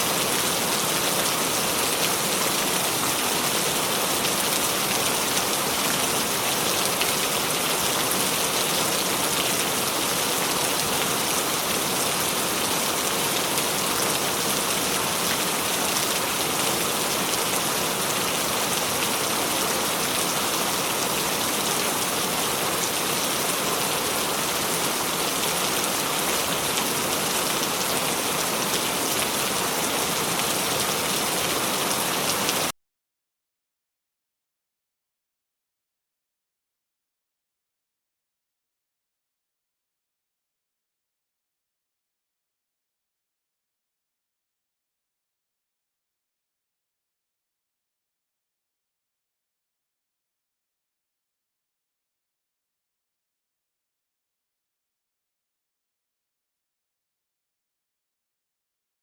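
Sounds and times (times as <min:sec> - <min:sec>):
steady rain: 0:00.0 - 0:32.7.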